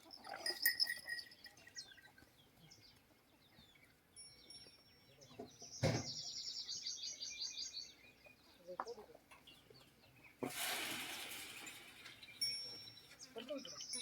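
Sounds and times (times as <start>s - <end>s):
small birds chirping and whistling: 0.0s - 2.9s, 3.6s - 8.6s, 11.7s - 14.0s.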